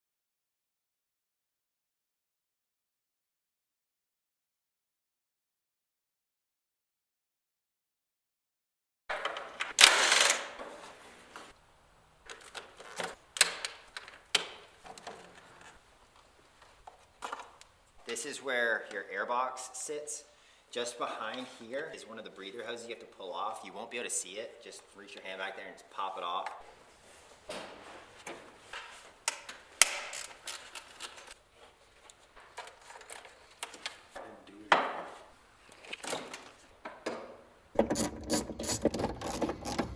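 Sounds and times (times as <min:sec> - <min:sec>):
hand tools clicking and knocking: 0:27.5 - 0:31.4, 0:36.0 - 0:39.9
plastic scraping: 0:37.8 - 0:39.9.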